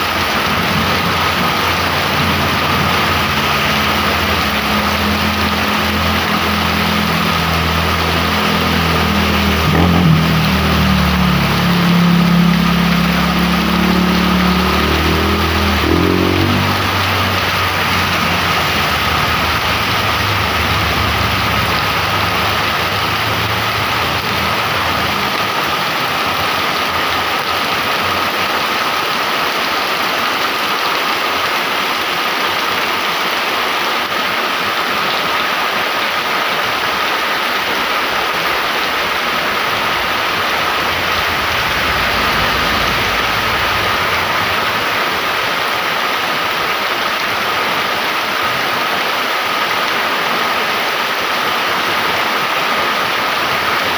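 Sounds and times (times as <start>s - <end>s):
passing vehicle engine rumble: 0.0s - 29.6s, 36.6s - 48.8s
heavy rain falling: 0.0s - 53.9s.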